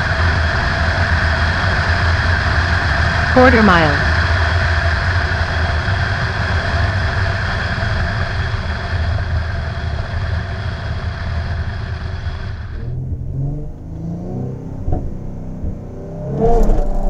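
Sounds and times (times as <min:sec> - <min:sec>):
car engine running low: 0:12.2 - 0:17.0
road noise: 0:12.6 - 0:17.0.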